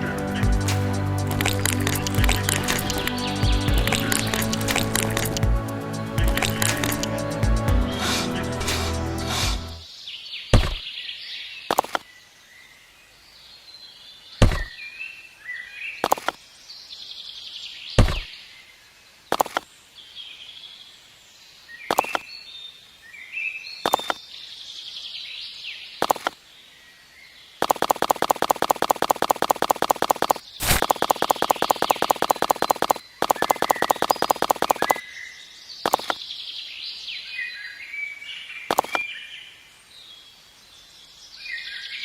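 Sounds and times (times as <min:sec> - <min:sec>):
birds chirping: 0:00.0 - 0:09.9, 0:30.3 - 0:39.6
fast even clicks: 0:27.6 - 0:35.0, 0:35.9 - 0:36.2, 0:38.7 - 0:39.0.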